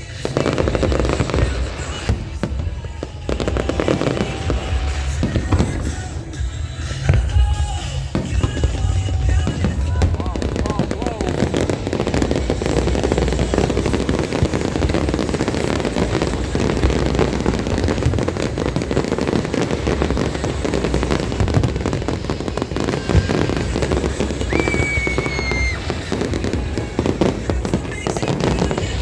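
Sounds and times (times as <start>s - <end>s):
background music: 0.0s - 29.0s
fireworks bangs and crackling: 0.0s - 29.0s
high whistle tone: 24.3s - 26.3s.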